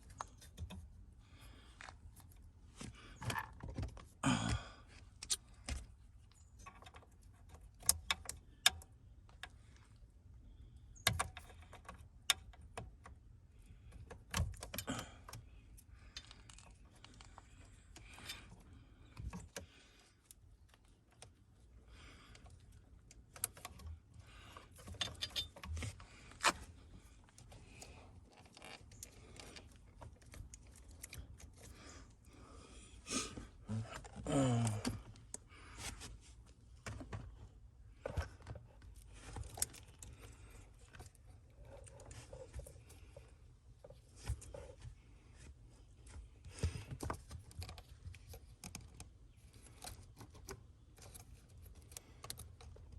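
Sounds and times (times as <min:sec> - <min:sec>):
metal tools clinking and rattling: 0:24.8 - 0:25.7.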